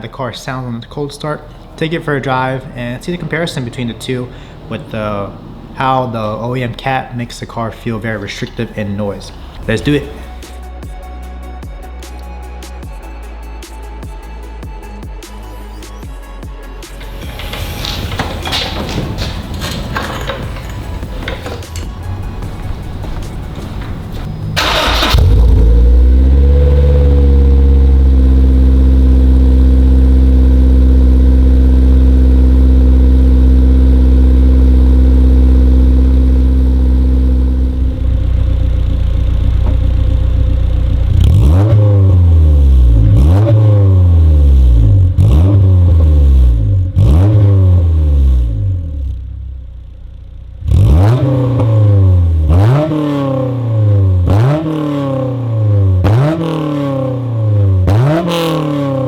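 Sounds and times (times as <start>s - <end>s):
car engine cold start: 0.4s - 10.5s, 16.9s - 48.6s
car engine revving: 1.2s - 10.7s, 16.9s - 59.0s
car engine fast idle: 1.4s - 10.4s, 22.0s - 41.2s.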